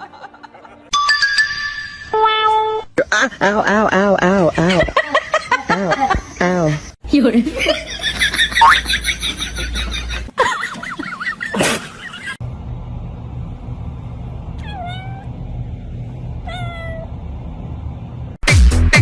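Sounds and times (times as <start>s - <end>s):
steady low hum: 3.0s - 18.4s
cat meowing: 14.6s - 15.3s, 16.4s - 17.1s.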